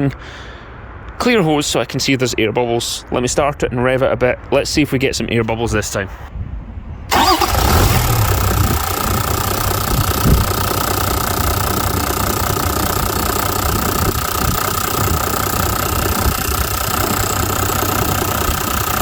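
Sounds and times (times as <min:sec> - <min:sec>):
diesel engine idling: 0:07.1 - 0:19.0.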